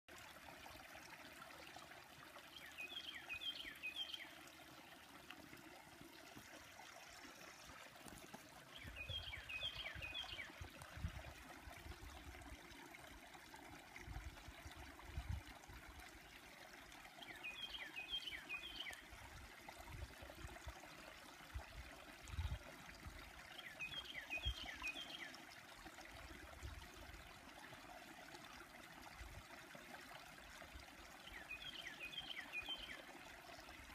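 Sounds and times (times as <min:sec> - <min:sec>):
creek trickling: 0:00.1 - 0:33.9
songbird singing: 0:02.5 - 0:04.4, 0:08.7 - 0:10.7, 0:17.2 - 0:19.0, 0:23.5 - 0:25.3, 0:31.3 - 0:33.1.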